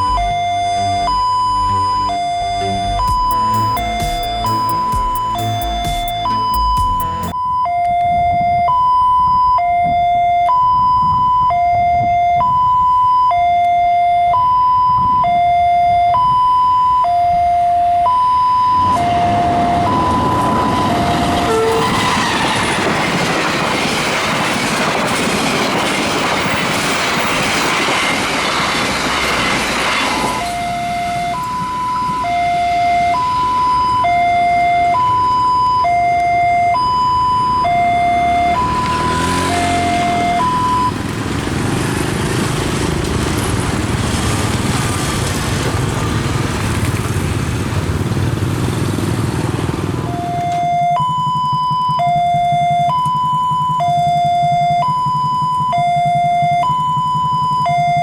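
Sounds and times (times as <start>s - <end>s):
level crossing two-tone signal: 0.0s - 22.4s, 30.2s - 41.0s, 50.0s - 58.0s
train wheels rumbling on rails: 18.7s - 32.2s, 37.0s - 57.9s.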